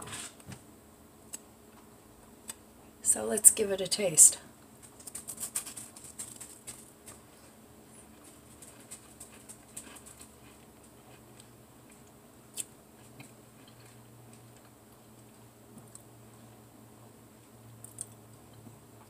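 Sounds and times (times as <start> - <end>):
person chewing cracker: 4.8 - 16.1, 17.8 - 18.7.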